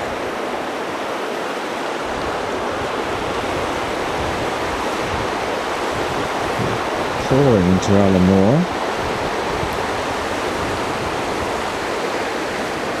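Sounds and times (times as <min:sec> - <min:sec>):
wind rumbling on microphone: 0:00.0 - 0:00.7, 0:01.9 - 0:13.0
floodwater rushing: 0:00.0 - 0:13.0.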